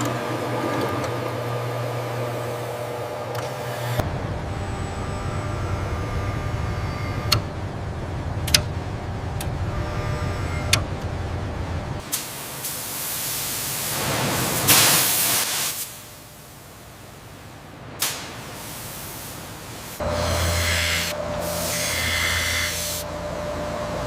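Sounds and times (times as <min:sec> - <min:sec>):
low machine hum: 0:00.0 - 0:12.0, 0:20.0 - 0:24.0
loud hiss: 0:12.0 - 0:16.1.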